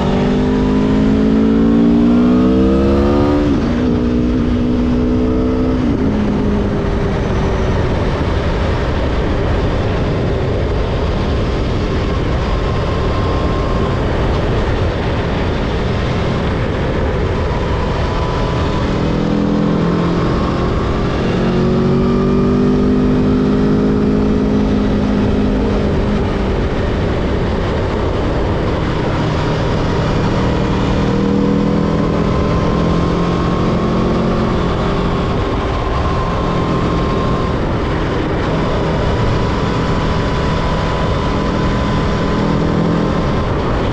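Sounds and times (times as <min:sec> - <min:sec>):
motorcycle engine: 0:00.0 - 0:43.9
wind rushing: 0:09.7 - 0:22.4.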